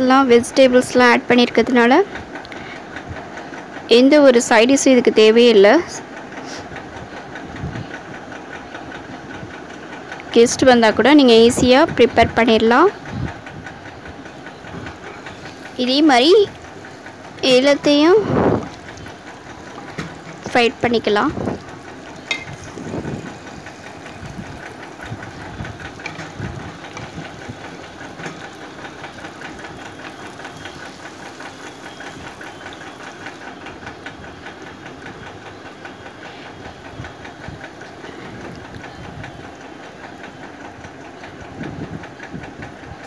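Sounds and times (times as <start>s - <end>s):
batter sizzling in oil: 14.9s - 33.6s.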